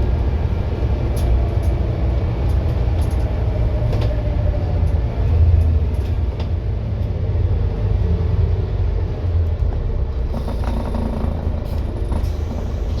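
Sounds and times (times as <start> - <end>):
bus diesel engine running: 0.0 - 13.0.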